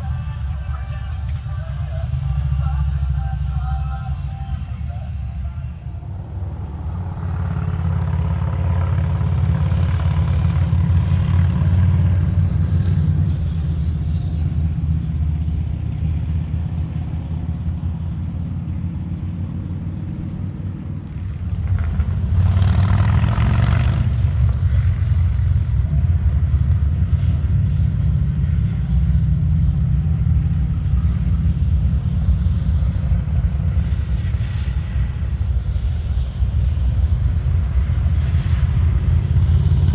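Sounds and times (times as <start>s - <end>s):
rush of noise: 0.0s - 16.2s, 21.0s - 39.9s
motorcycle engines rumbling: 0.0s - 39.9s.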